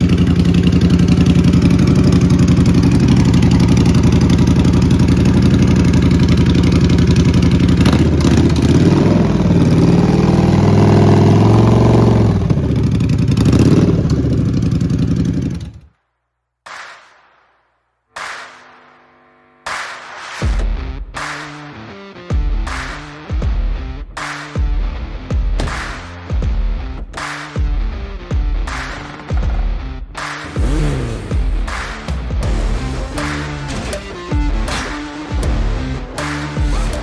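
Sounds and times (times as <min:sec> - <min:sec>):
motorcycle engine revving: 0:00.0 - 0:15.9, 0:30.2 - 0:37.0.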